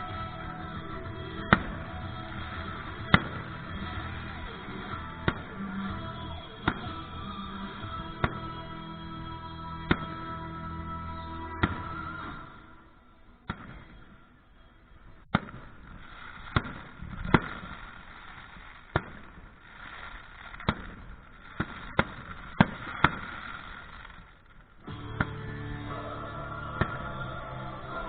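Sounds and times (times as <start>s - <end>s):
fireworks crackle and hiss: 0.0s - 8.9s, 14.9s - 28.0s
fireworks shells bursting: 13.5s - 26.0s.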